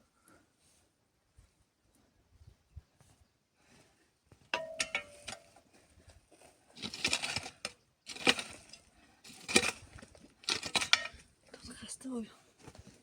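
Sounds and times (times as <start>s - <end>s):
objects clinking: 4.6s - 5.4s.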